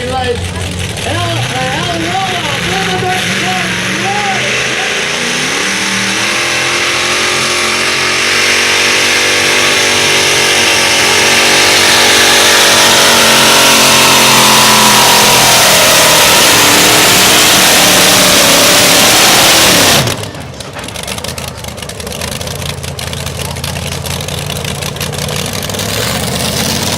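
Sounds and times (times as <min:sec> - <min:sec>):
tractor engine at high revs: 0:00.0 - 0:26.9.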